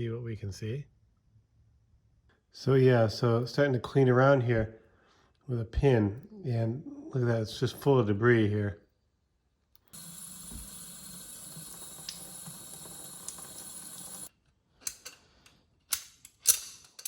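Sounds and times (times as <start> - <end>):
background hiss: 9.8 - 14.3
metallic clicks and scrapes: 14.8 - 17.0.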